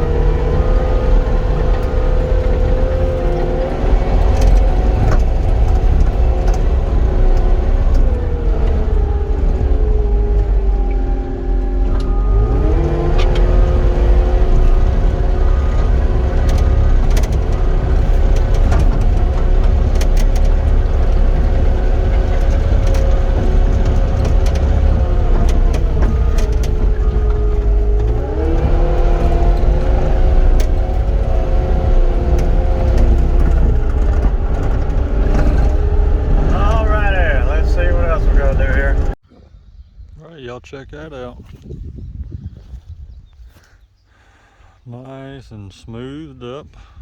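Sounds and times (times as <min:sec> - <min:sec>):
diesel engine at high revs: 0:00.0 - 0:39.2
clicks and clanks: 0:13.0 - 0:36.5.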